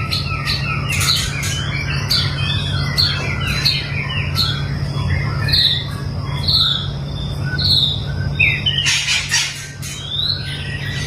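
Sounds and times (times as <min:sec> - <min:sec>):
bird whistled calls: 0:00.0 - 0:11.0
steady low hum: 0:00.0 - 0:11.0
harsh rasping bird call: 0:08.5 - 0:11.0.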